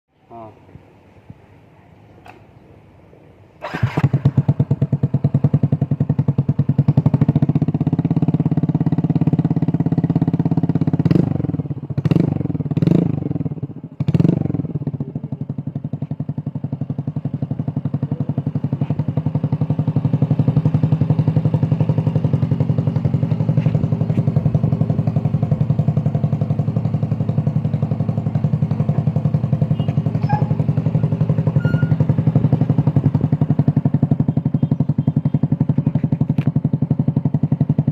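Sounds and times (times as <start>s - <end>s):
engine revving: 3.6s - 5.1s, 7.0s - 14.8s
scooter engine idling: 3.6s - 37.9s.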